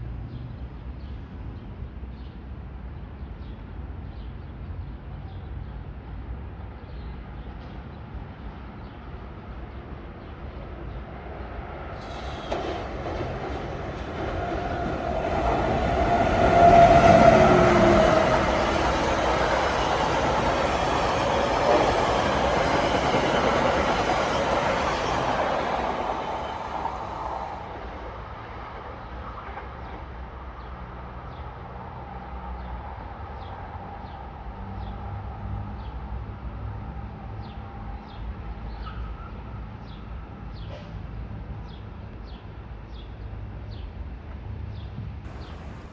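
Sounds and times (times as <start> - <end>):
train passing at speed: 7.1 - 41.6, 45.0 - 45.9.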